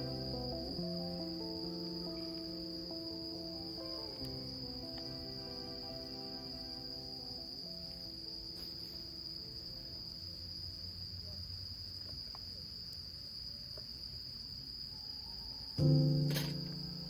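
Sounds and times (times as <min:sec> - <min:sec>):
soft background music: 0:00.0 - 0:10.6, 0:15.8 - 0:17.0
crickets trilling: 0:00.0 - 0:17.0.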